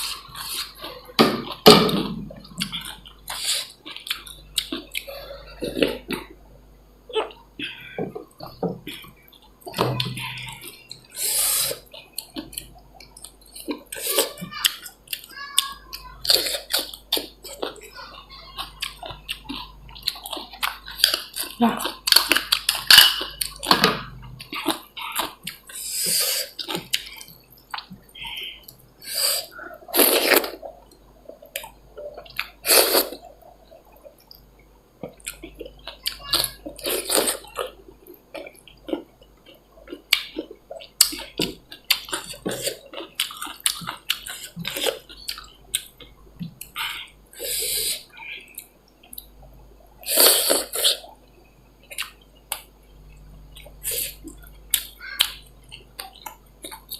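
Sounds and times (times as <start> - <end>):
wet chewing and mouth smacks: 2.3 - 6.3, 18.6 - 51.2, 51.8 - 52.8.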